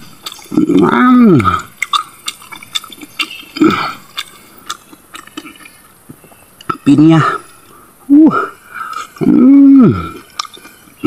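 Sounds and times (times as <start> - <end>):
wet chewing and smacking: 0.0 - 6.9, 10.0 - 11.0.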